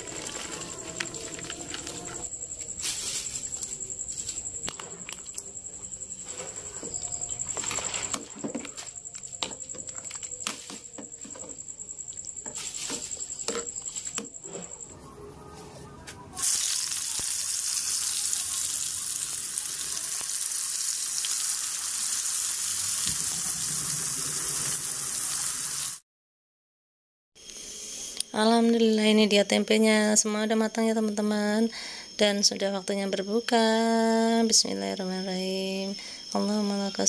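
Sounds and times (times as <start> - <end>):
deep-frying sizzle: 16.4 - 26.0.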